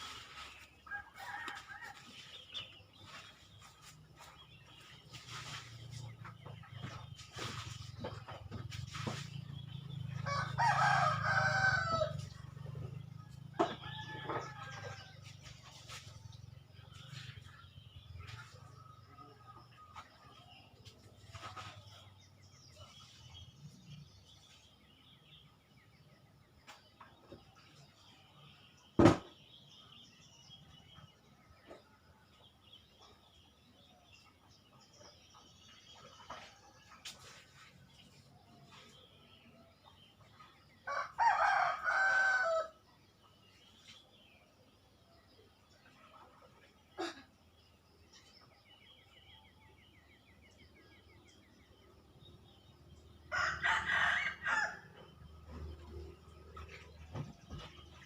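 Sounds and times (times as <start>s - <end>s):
rooster crowing: 0.9s - 2.1s, 10.2s - 12.3s, 40.9s - 42.8s, 53.3s - 55.0s
sharp knock: 29.0s - 29.3s.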